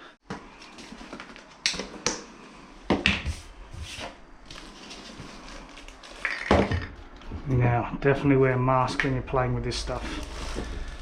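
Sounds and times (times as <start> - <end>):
handling rustles and knocks: 2.9 - 7.4.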